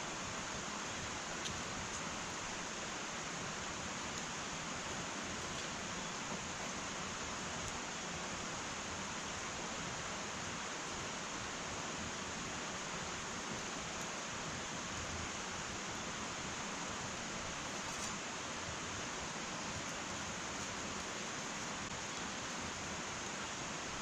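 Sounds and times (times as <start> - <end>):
fire crackles: 0.0 - 10.0
wood fire hissing: 0.0 - 24.0.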